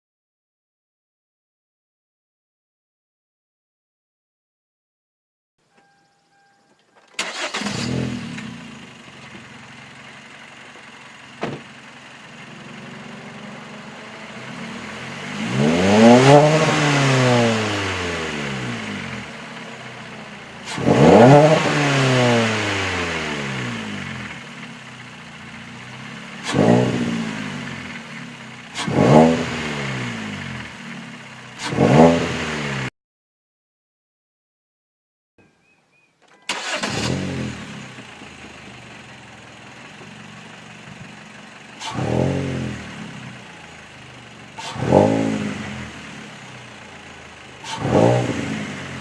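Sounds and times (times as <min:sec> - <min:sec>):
car engine starting and revving: 0:07.1 - 0:32.9, 0:36.5 - 0:49.0.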